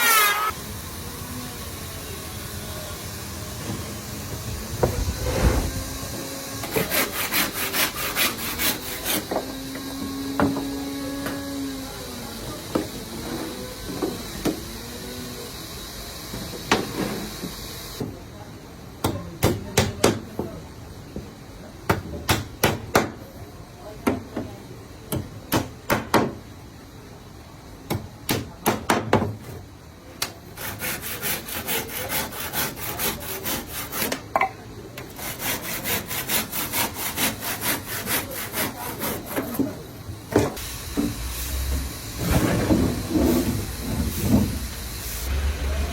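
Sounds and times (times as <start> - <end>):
hand sawing wood: 0.0 - 0.5, 4.8 - 11.3, 30.6 - 34.3, 35.0 - 39.8.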